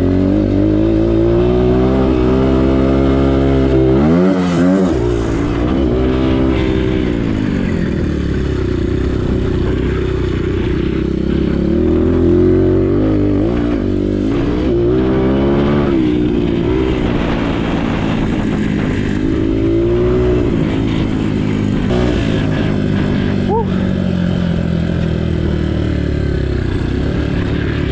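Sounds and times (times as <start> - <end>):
motocross bike engine revving: 0.0 - 27.9.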